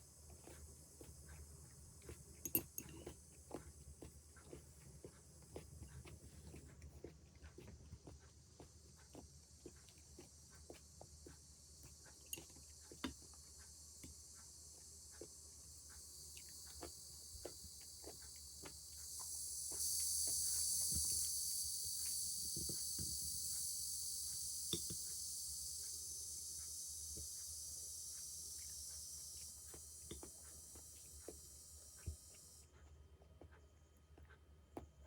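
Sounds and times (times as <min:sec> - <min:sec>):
cicada chorus drone: 0:08.6 - 0:32.7.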